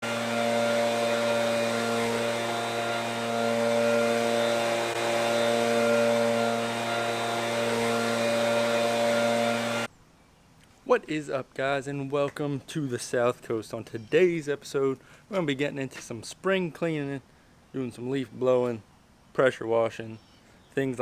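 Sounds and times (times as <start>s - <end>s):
small gasoline engine running: 0.0s - 9.9s.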